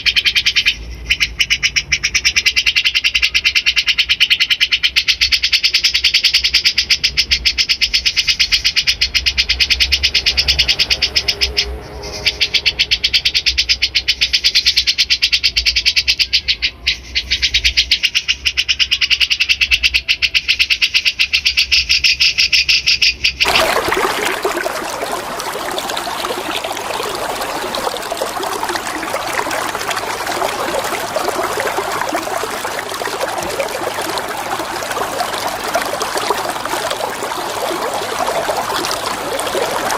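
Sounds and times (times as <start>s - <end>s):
running water: 23.4s - 39.9s.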